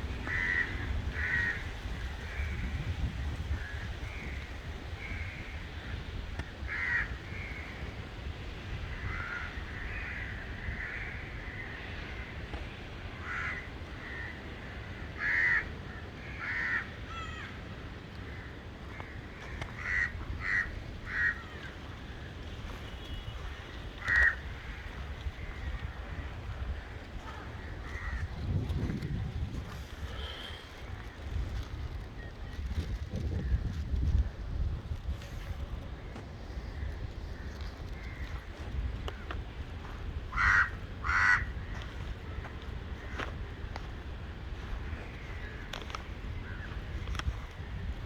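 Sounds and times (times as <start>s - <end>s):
steady low rumble: 0.0s - 7.8s
harsh crow-like bird calls: 0.0s - 8.1s, 8.8s - 28.5s, 36.0s - 43.6s, 44.6s - 47.8s.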